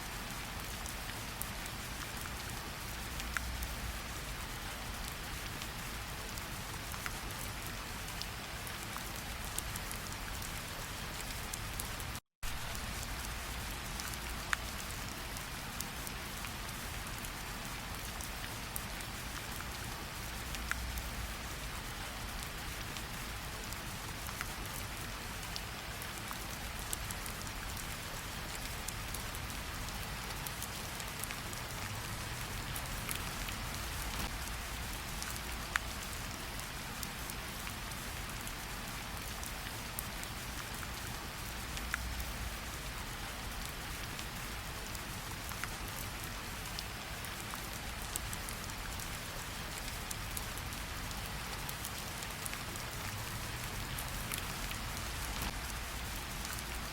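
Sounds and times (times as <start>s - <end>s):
steady rain: 0.0s - 56.9s
raindrops ticking: 25.4s - 37.7s, 49.7s - 56.9s.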